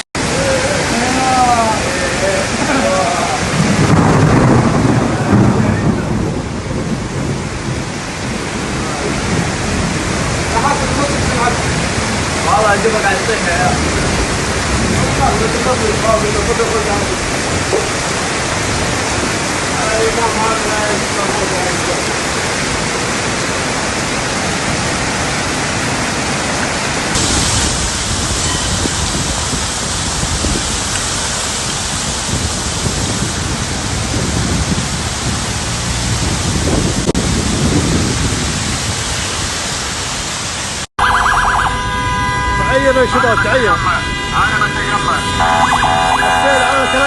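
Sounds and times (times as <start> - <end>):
heavy rain: 0.0 - 47.0
rushing floodwater: 0.0 - 47.0
running water: 10.3 - 33.0, 39.0 - 47.0.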